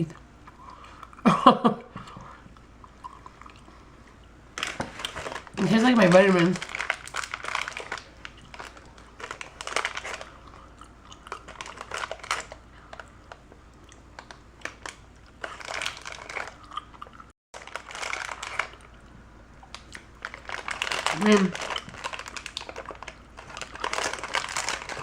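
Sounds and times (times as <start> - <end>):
chewing gummy snacks: 1.8 - 25.0
plastic pouch crinkling: 4.6 - 10.4, 11.3 - 13.1, 14.2 - 16.6, 17.6 - 18.8, 19.7 - 25.0.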